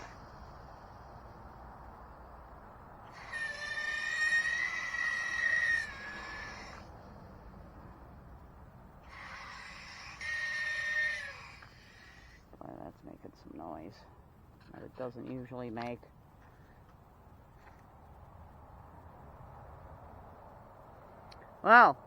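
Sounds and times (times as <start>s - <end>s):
high-pitched squeal: 3.1s - 7.0s.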